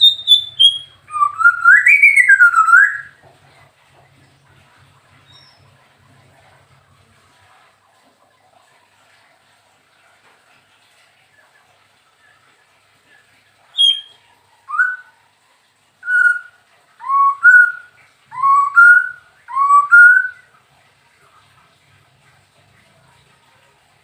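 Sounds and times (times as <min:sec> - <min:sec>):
bird singing fluty whistles: 0:00.0 - 0:03.1, 0:13.8 - 0:15.1, 0:16.0 - 0:20.4.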